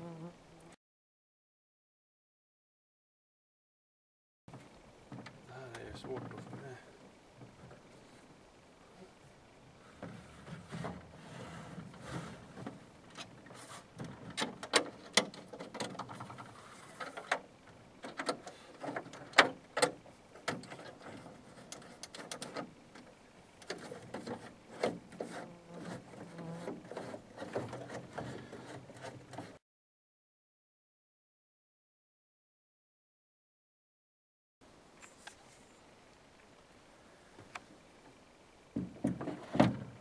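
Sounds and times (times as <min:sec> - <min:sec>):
parts sliding and scraping: 0:09.8 - 0:19.4, 0:20.4 - 0:29.6.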